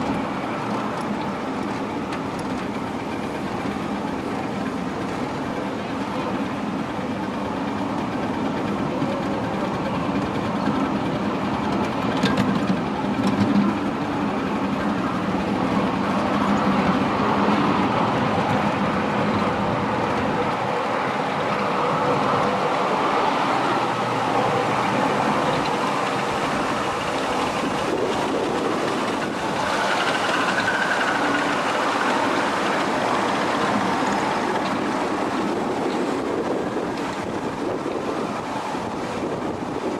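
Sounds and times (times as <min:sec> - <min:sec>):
miniature train rumbling on track: 0:00.0 - 0:39.9.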